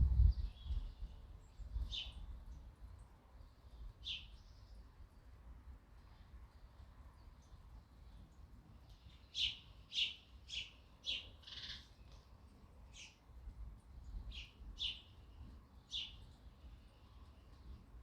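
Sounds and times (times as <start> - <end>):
sparrow chirping: 4.0 - 4.6, 9.2 - 11.9, 14.3 - 15.2, 15.8 - 16.3.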